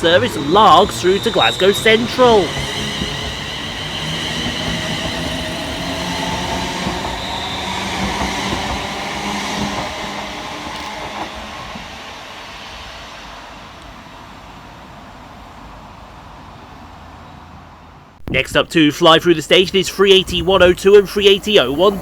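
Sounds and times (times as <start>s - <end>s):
electric train motor whine: 0.0s - 14.0s
wheel and rail noise: 0.0s - 18.1s, 19.5s - 22.0s.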